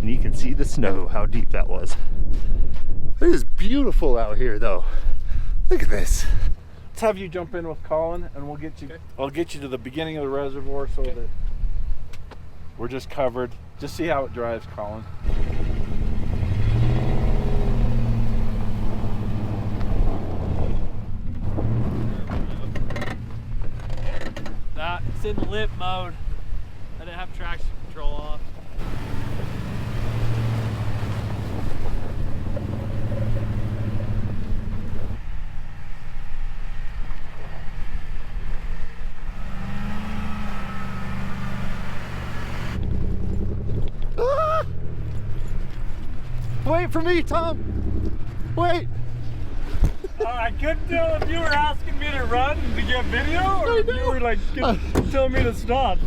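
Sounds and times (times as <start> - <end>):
vehicle engine revving: 14.6 - 25.4, 28.8 - 56.0.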